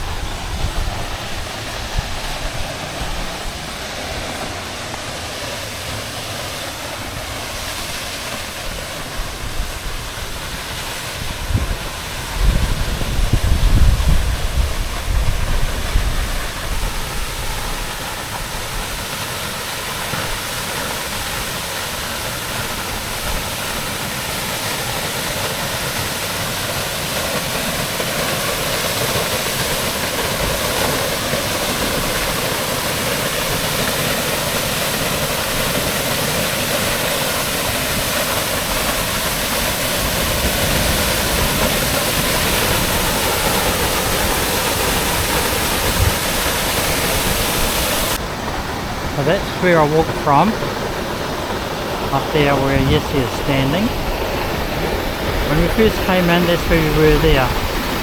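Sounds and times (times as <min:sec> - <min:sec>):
wind buffeting microphone: 0:00.0 - 0:04.8, 0:08.5 - 0:19.1, 0:28.9 - 0:58.0
waterfall rushing: 0:00.0 - 0:58.0.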